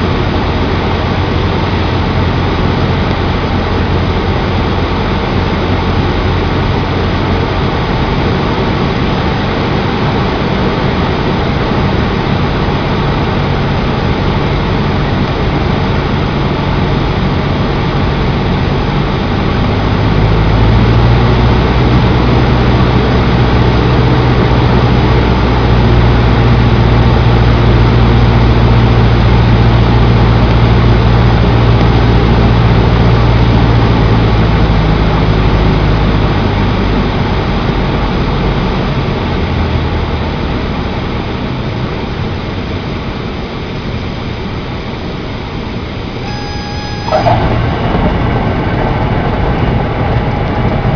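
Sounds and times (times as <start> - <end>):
light aircraft engine and propeller: 0.0 - 50.9.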